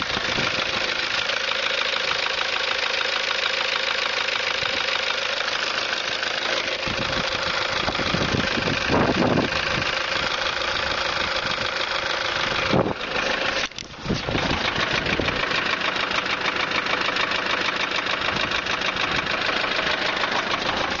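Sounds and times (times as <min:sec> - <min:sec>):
diesel engine idling with knock: 0:00.0 - 0:21.0.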